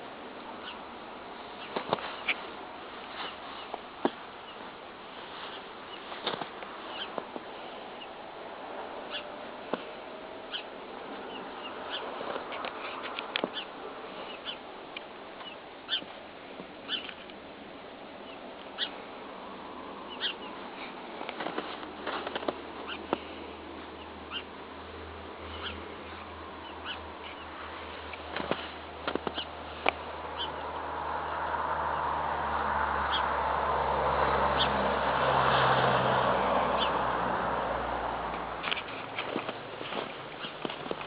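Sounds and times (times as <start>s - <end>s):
puppies squeaking and yipping: 24.3s - 24.5s, 39.9s - 41.0s.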